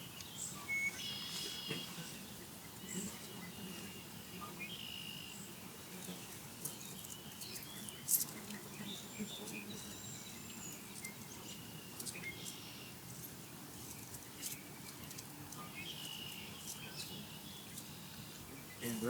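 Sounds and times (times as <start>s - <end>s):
birds chirping and whistling: 13.8s - 19.0s.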